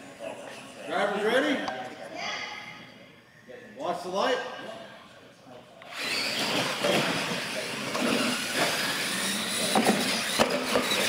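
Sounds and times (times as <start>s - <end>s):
rc trucks motor noise: 5.9s - 11.0s.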